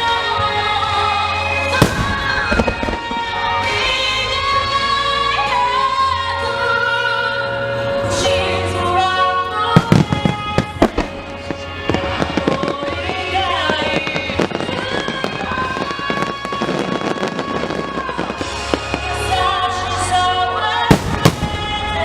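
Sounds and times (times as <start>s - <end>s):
music with held melodic notes: 0.2s - 22.0s
fireworks bangs: 1.8s - 4.8s, 9.7s - 20.2s, 20.9s - 22.0s.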